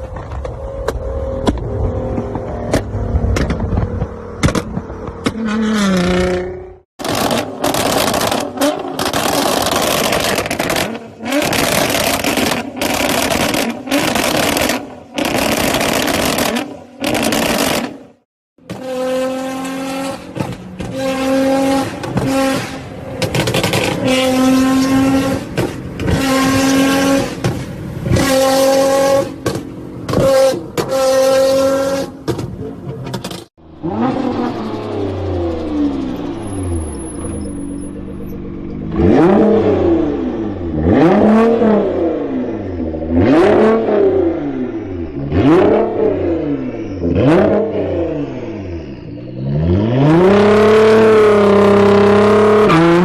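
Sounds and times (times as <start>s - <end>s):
car engine revving hard: 38.9s - 48.7s, 49.3s - 53.0s.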